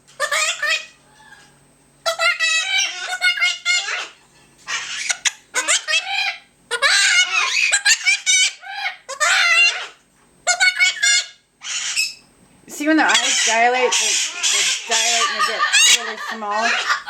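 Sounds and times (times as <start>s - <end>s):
parrots calling: 0.1s - 17.0s.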